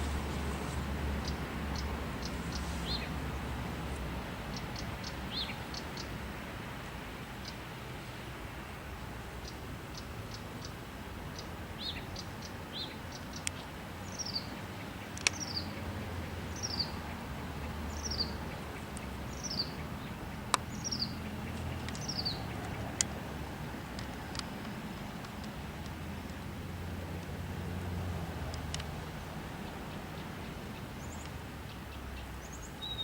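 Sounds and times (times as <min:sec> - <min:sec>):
songbird calling: 0:01.2 - 0:03.3, 0:03.9 - 0:06.2, 0:07.4 - 0:08.2, 0:09.4 - 0:26.6, 0:29.5 - 0:33.0
steady low rumble: 0:15.3 - 0:32.2
sharp clicks: 0:24.0 - 0:26.4.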